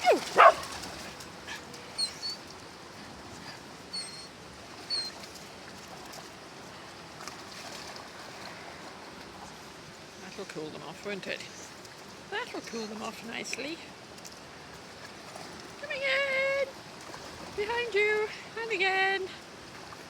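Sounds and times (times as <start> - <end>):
river water rushing: 0.0 - 12.6.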